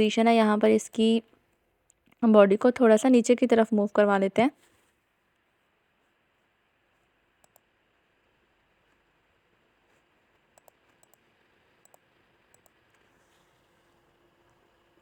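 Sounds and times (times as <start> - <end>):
faint computer mouse clicks: 7.4 - 7.7, 10.5 - 13.1.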